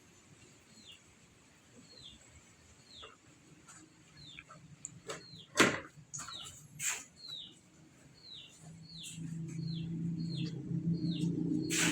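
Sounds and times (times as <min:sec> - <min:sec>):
chicken peeping: 0:06.2 - 0:11.9.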